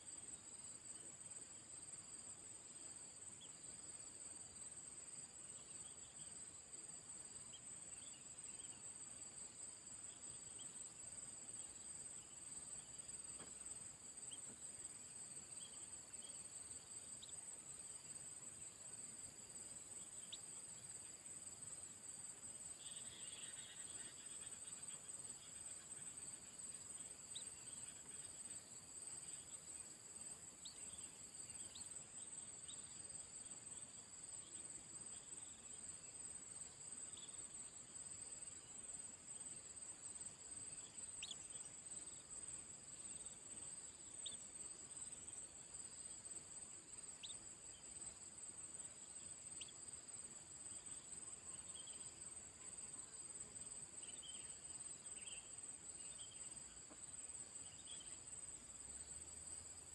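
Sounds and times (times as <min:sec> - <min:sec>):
crickets trilling: 0:04.3 - 0:59.9
faint chirps: 0:10.0 - 0:17.5, 0:20.0 - 0:21.3, 0:22.6 - 0:36.2, 0:37.0 - 0:39.6, 0:40.7 - 0:46.2, 0:46.8 - 0:48.2, 0:49.0 - 0:59.9
higher insect tone: 0:20.0 - 0:36.0.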